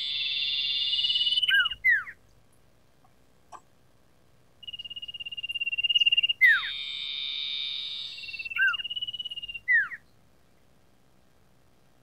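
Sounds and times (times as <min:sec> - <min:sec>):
bird trilling: 0:00.0 - 0:02.2, 0:04.6 - 0:10.0
down-slurred whistled bird note: 0:04.6 - 0:10.0.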